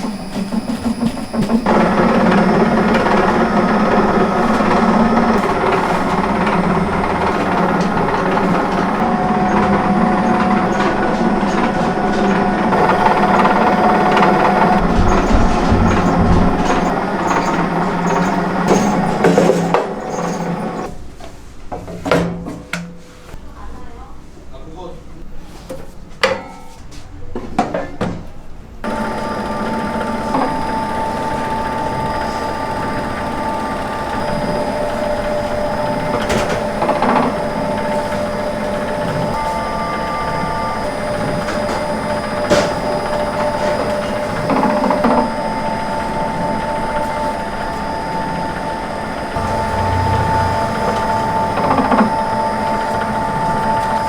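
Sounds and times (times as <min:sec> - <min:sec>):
machine clanks: 0:00.0 - 0:20.9, 0:49.4 - 0:52.1
machine humming and whining: 0:00.0 - 0:20.9, 0:28.8 - 0:54.0
knocks and clatters: 0:12.7 - 0:20.9.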